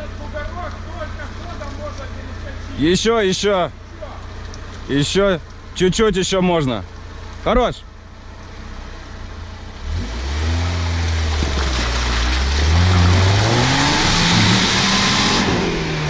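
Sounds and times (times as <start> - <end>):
engine revving: 9.6 - 16.0.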